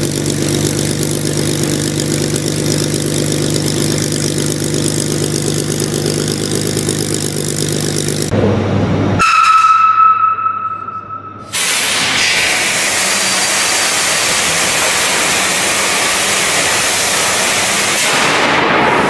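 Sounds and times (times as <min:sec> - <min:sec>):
high ringing tone: 0:09.9 - 0:11.5.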